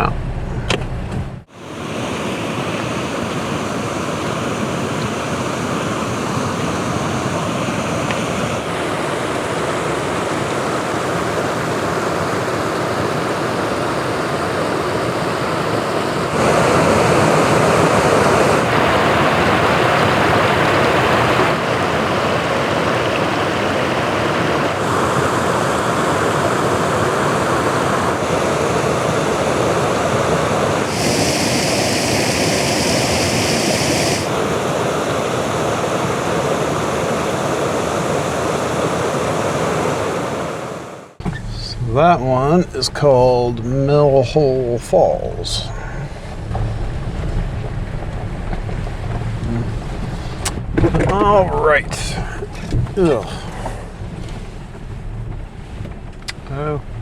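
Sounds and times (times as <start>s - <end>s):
waterfall rushing: 1.5s - 41.2s, 51.1s - 53.9s.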